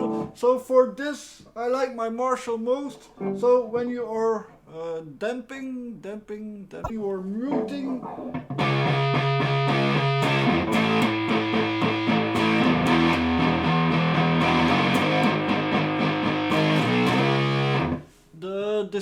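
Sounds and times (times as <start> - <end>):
distorted electric guitar riff: 0.0 - 0.3, 7.5 - 18.0.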